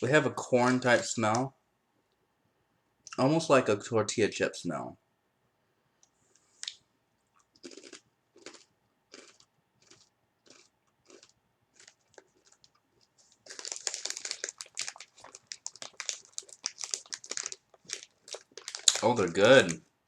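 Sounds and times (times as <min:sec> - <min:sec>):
chips crunching while chewed: 0:07.4 - 0:19.8.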